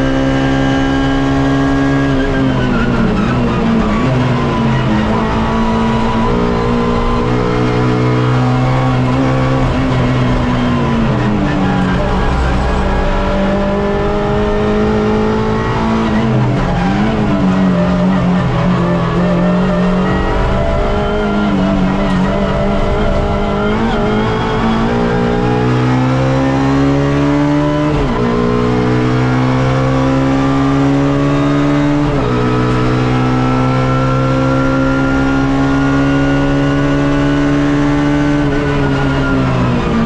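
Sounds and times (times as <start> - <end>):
car engine accelerating: 0.0 - 40.0.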